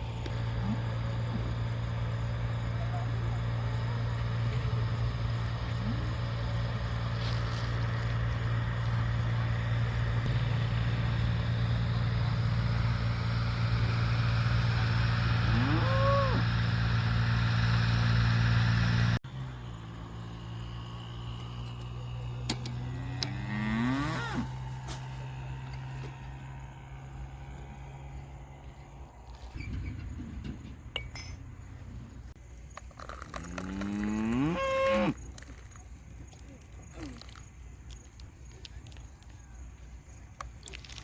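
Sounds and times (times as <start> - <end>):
engine running steadily: 0.0 - 41.0
cow mooing: 15.4 - 16.6, 23.3 - 24.5, 33.3 - 35.2.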